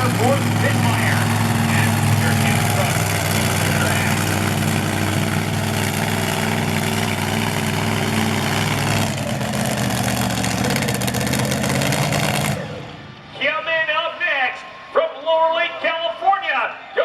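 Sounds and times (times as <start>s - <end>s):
truck engine running loud: 0.0s - 13.5s.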